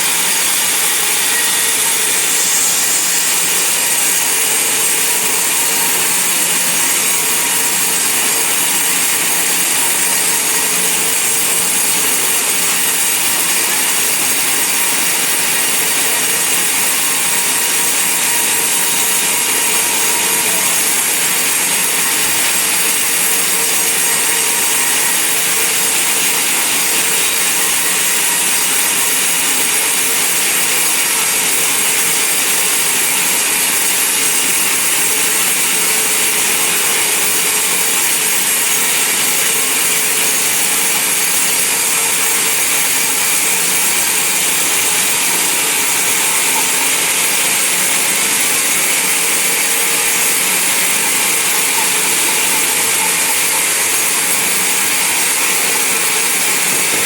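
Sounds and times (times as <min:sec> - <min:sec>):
band saw blade hissing through wood: 0:00.1 - 0:04.5.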